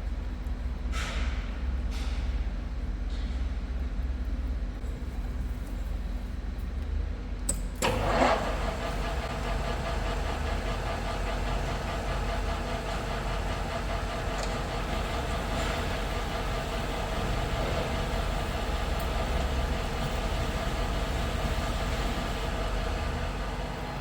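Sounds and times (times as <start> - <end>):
machine tool humming: 7.8 - 24.0.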